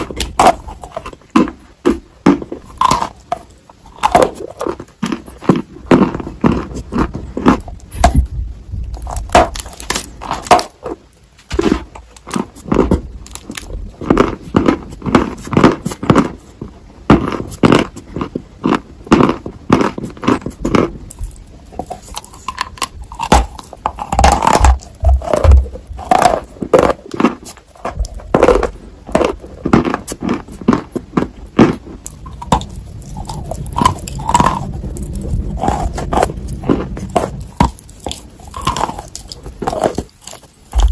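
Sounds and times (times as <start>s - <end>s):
chewing crunchy clay: 0.0s - 40.9s.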